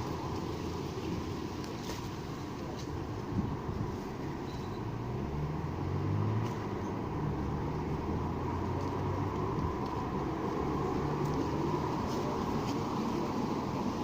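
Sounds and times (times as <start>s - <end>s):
car passing: 0.0s - 14.0s
steady background hiss: 0.0s - 14.0s.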